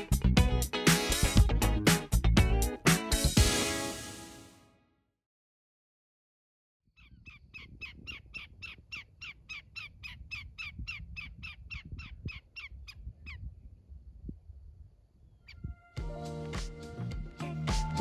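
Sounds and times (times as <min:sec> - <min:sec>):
wind noise rumble: 0:10.2 - 0:15.8.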